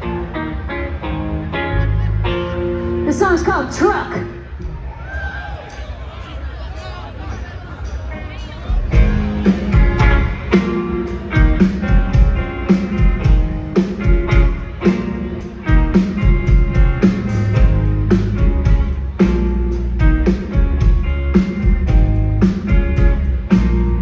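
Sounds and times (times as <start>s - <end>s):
strummed guitar: 0.0s - 3.2s, 8.9s - 24.0s
bass guitar: 0.0s - 4.6s, 8.9s - 24.0s
steady drum beat: 8.7s - 24.0s.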